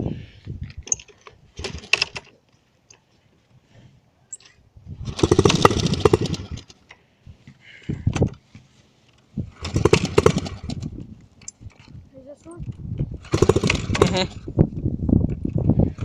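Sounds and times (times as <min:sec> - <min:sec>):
dirt bike engine cranking: 0:00.8 - 0:02.4, 0:04.3 - 0:06.9, 0:09.5 - 0:11.9, 0:13.1 - 0:14.5
engine sputtering: 0:05.0 - 0:06.8, 0:09.5 - 0:11.0, 0:13.2 - 0:14.5.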